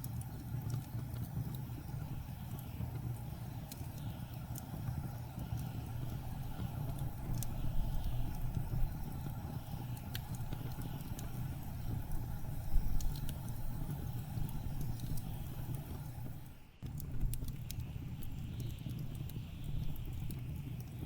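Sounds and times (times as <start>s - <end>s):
wood fire crackling: 0.0s - 21.0s
blizzard wind rumbling: 1.8s - 17.7s.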